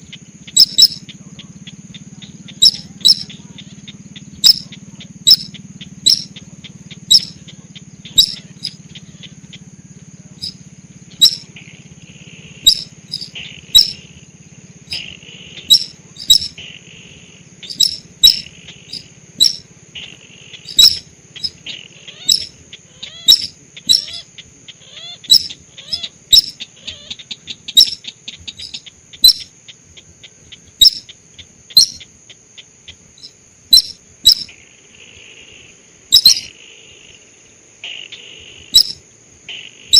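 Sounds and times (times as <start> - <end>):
sharp high bird chirps: 0.0 - 9.7, 10.4 - 11.6, 12.5 - 14.1, 14.9 - 16.6, 17.6 - 24.3, 24.9 - 29.5, 30.6 - 32.2, 32.9 - 34.6, 36.1 - 36.6, 38.6 - 39.0
buzzy bird trills: 0.0 - 32.2, 32.8 - 34.6, 35.6 - 36.6, 37.8 - 39.9
steady high-pitched tone: 4.4 - 4.7, 6.1 - 6.4, 12.6 - 14.0, 15.7 - 16.6, 17.6 - 19.7.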